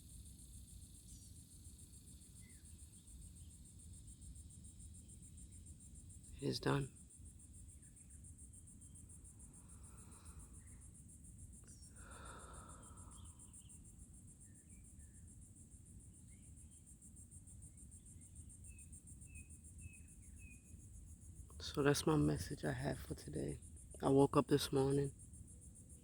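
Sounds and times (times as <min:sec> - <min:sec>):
insect trilling: 0:07.7 - 0:15.4.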